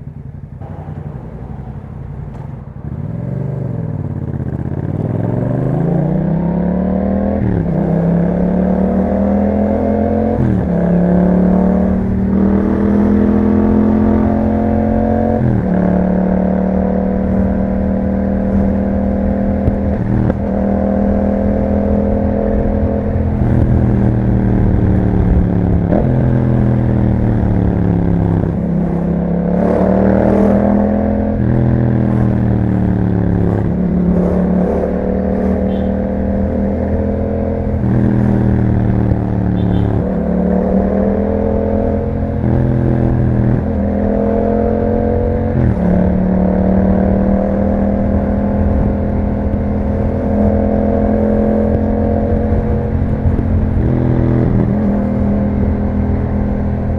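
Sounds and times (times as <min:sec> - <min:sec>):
motorcycle engine shifting gears: 0:00.0 - 0:56.9.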